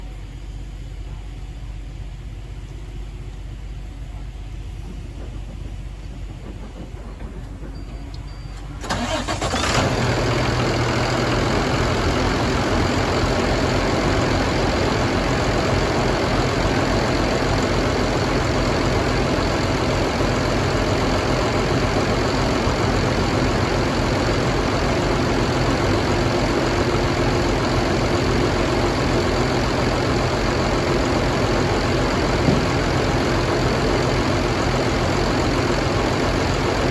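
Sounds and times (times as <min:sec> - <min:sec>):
low steady hum: 0:00.0 - 0:09.4
diesel engine starting and idling: 0:00.0 - 0:36.9.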